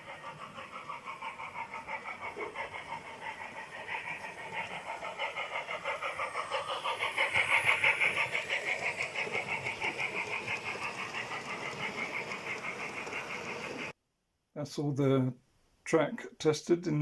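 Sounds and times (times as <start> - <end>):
model train clattering on track: 0.0 - 13.9.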